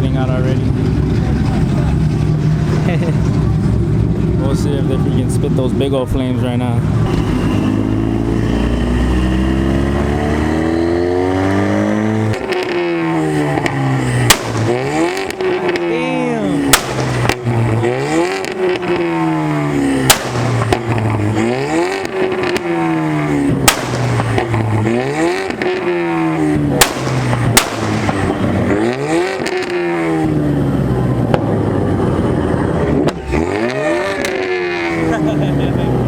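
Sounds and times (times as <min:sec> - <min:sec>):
car engine revving: 0:00.0 - 0:36.0
exhaust backfire cracks: 0:07.0 - 0:35.5.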